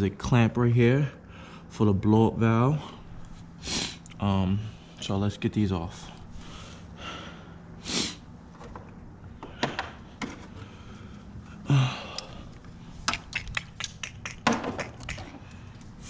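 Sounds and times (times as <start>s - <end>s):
loud breaths: 6.2s - 8.3s, 9.3s - 13.0s.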